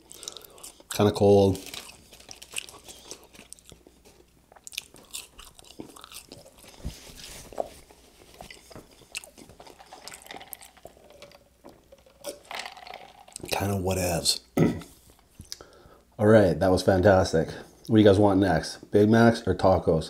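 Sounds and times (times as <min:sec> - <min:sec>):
person chewing fries: 0:00.0 - 0:13.5.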